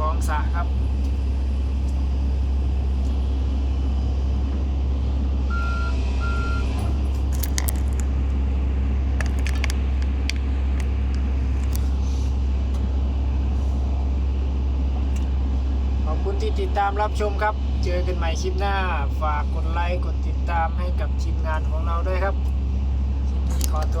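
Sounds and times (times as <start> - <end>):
diesel engine humming: 0.0 - 24.0
sharp clicks and clinks: 9.2 - 10.9.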